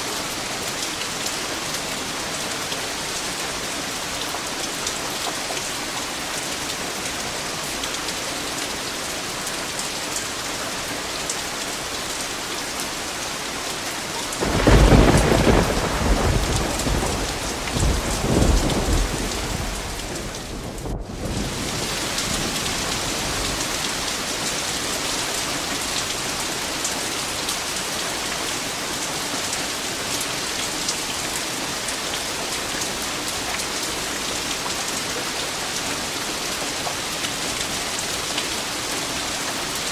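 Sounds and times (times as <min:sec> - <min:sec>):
heavy rain falling: 0:00.0 - 0:39.9
thunder rumbling: 0:14.4 - 0:24.1.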